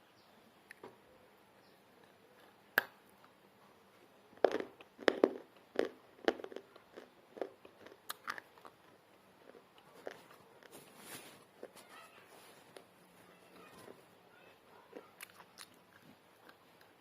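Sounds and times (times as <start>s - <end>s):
clay pot crunching when chewed: 4.4s - 10.9s, 14.7s - 17.0s.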